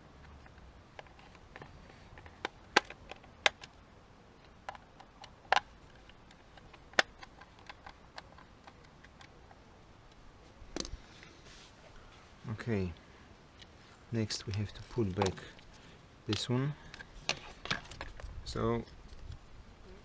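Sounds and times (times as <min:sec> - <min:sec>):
rustling scrape: 0:11.0 - 0:12.4.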